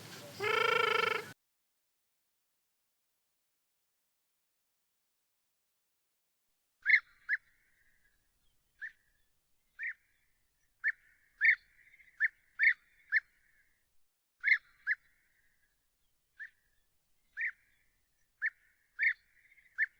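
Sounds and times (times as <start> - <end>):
bird call notes: 0.0 - 1.4.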